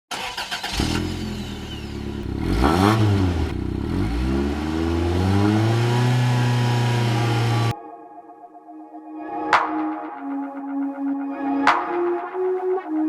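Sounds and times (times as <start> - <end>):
car engine revving: 0.1 - 7.7.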